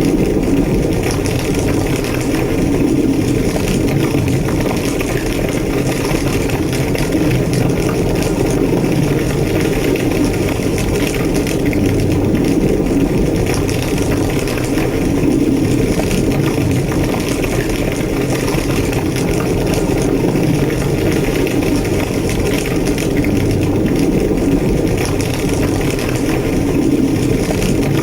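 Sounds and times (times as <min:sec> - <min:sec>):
fire crackling: 0:00.0 - 0:28.0
fire roaring: 0:00.0 - 0:28.0.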